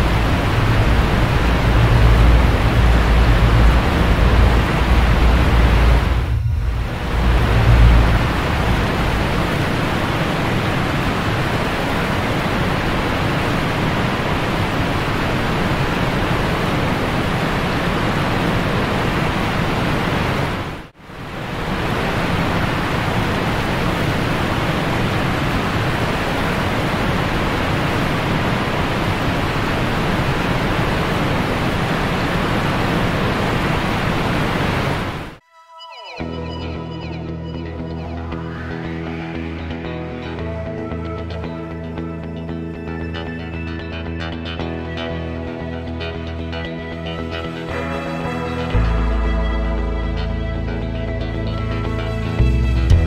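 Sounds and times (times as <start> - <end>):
steady rushing noise: 0.0 - 35.4, 37.7 - 41.4.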